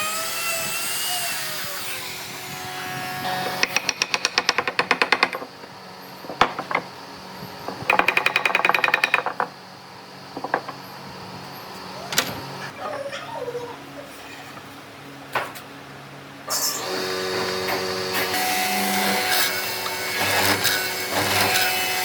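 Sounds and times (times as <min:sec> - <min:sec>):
power tool hammering rapidly: 0:03.3 - 0:05.6, 0:07.7 - 0:09.5.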